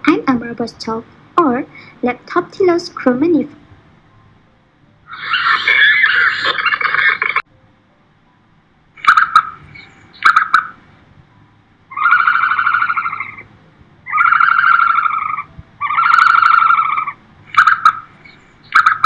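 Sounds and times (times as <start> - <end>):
long buzzy harsh bird calls: 5.1 - 7.4, 9.0 - 10.8, 11.9 - 19.0.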